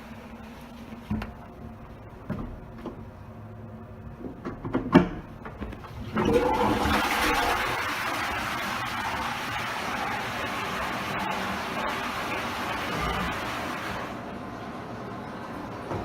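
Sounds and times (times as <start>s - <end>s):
toilet water rushing: 5.8s - 14.3s.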